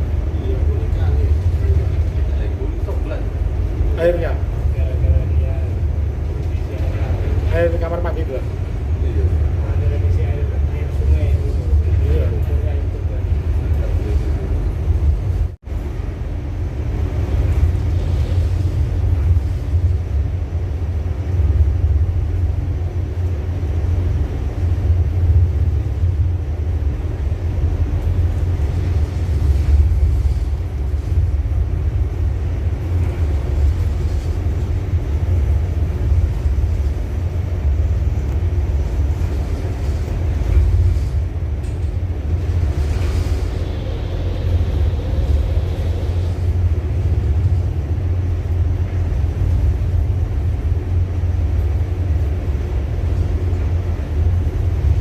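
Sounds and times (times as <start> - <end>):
ship engine droning: 0.0 - 55.0.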